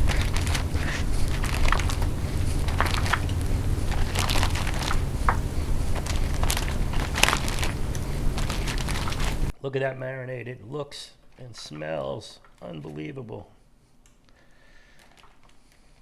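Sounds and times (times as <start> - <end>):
plastic bag crinkling: 0.0 - 9.5
steady low hum: 0.0 - 9.5.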